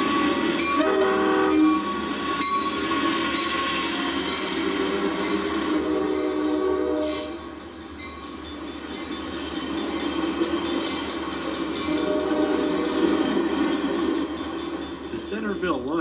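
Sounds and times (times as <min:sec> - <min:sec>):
train horn blasts: 0:00.0 - 0:07.6, 0:11.7 - 0:13.4
crossing bell dinging: 0:00.0 - 0:16.0
locomotive rumble: 0:00.0 - 0:16.0.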